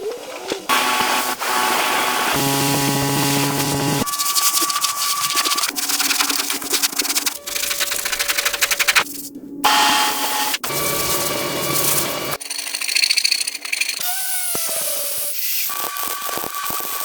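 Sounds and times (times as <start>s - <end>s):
power tools whining: 0.6s - 4.1s.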